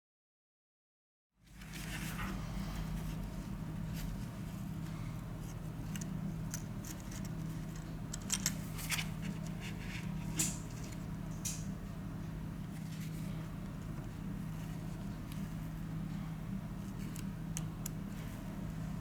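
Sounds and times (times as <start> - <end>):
steady low hum: 1.4 - 19.0.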